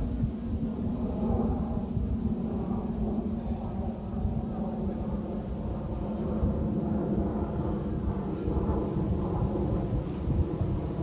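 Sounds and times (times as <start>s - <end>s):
wind buffeting microphone: 8.0s - 11.0s.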